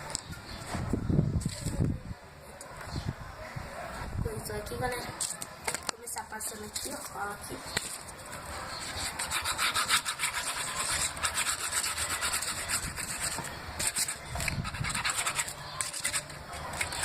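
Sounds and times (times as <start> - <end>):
glue rubbing and scraping on cardboard: 7.8 - 17.0.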